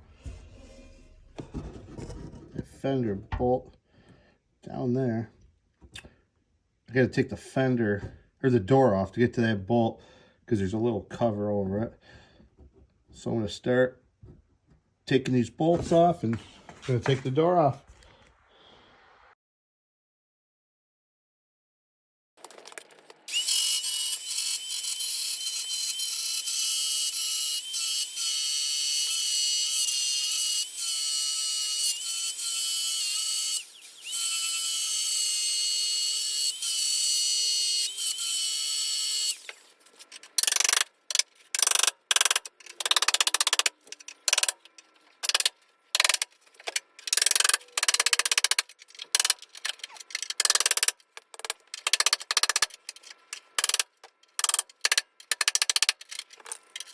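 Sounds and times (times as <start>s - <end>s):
power tool whining: 23.3s - 44.6s.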